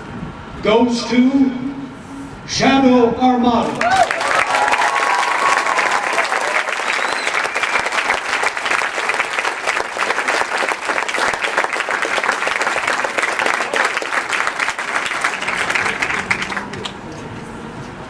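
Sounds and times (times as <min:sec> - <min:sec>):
crowd applauding: 0:03.8 - 0:17.1
short whistle: 0:06.9 - 0:07.8.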